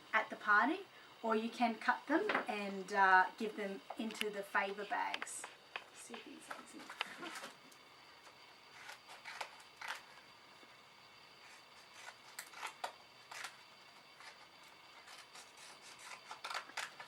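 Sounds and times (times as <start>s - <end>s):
faint room hiss: 0.0s - 17.0s
paper rustling and clicking: 15.0s - 17.0s.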